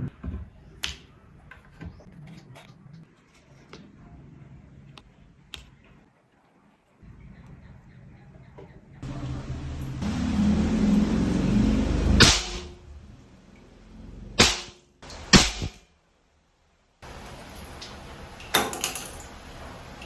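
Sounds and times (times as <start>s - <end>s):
noisy hiss: 9.0s - 20.0s
firecrackers cracking: 12.0s - 12.8s, 14.4s - 15.9s, 17.0s - 19.8s.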